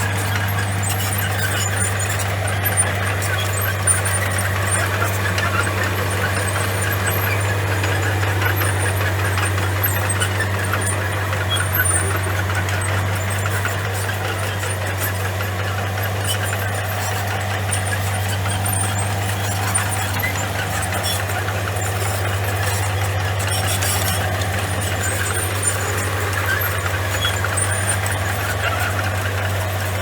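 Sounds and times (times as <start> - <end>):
bulldozer diesel engine running: 0.0 - 30.0.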